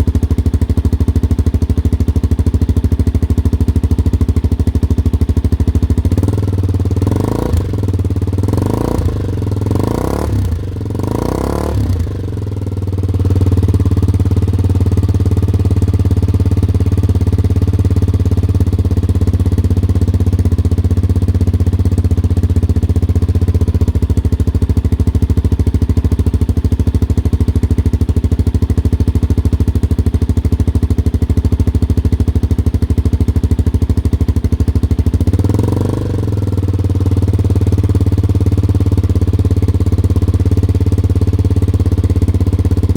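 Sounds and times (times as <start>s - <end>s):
motorcycle engine revving and idling: 0.0s - 42.9s.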